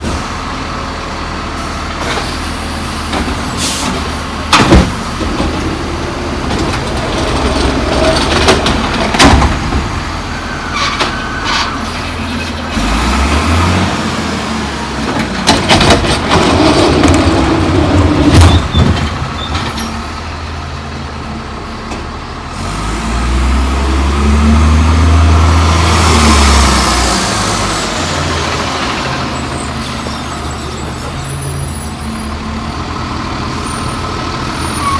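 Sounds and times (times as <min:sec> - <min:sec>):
air brake hissing: 0:01.6 - 0:04.2
metal bangs and clanks: 0:06.4 - 0:10.1
diesel truck engine revving: 0:12.2 - 0:34.9.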